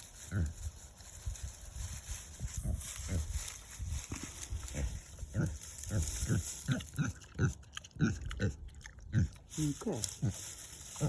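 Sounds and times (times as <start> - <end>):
pig grunting: 4.7 - 9.5.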